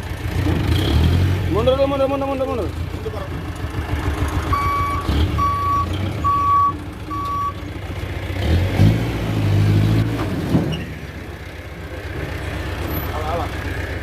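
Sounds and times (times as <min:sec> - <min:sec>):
diesel truck engine revving: 0:00.0 - 0:14.0
reversing alarm beeping: 0:04.5 - 0:07.6.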